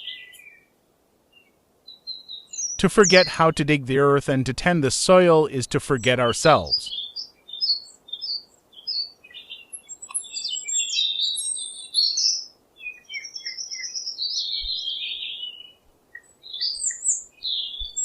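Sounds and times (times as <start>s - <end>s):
faint steady hiss: 0.0s - 8.9s
songbirds chirping and singing: 1.4s - 4.1s, 5.2s - 18.0s.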